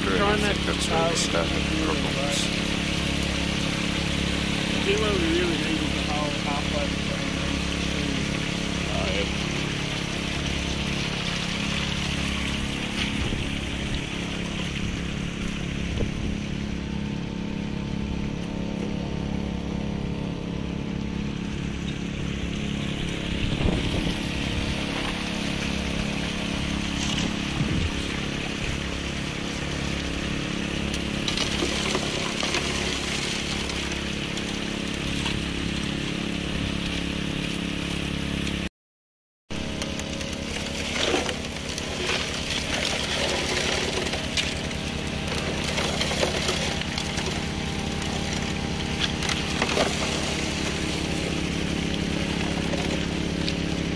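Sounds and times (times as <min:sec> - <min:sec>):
water rushing through sluice: 0:00.0 - 0:38.7, 0:39.5 - 0:53.9
small petrol engine running: 0:21.2 - 0:38.6, 0:39.5 - 0:53.9.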